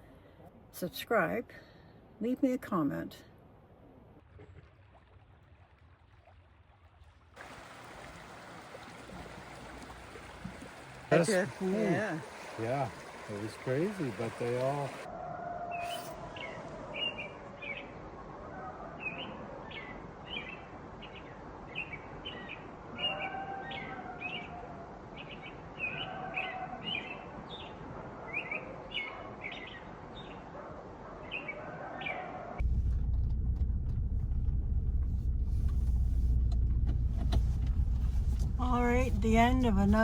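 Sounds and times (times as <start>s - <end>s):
creek water rushing: 7.4s - 15.1s
vehicle engine humming: 7.4s - 15.1s, 32.6s - 40.0s
small birds chirping: 10.8s - 15.1s.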